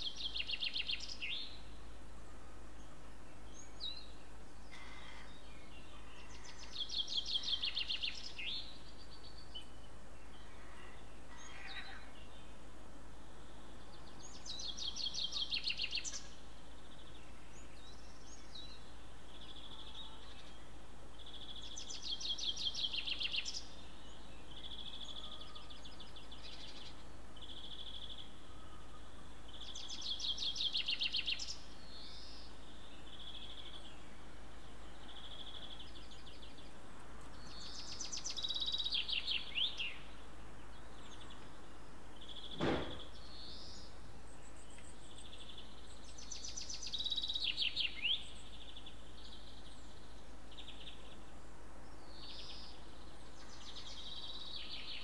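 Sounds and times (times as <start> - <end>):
sharp knock: 42.6 - 43.1.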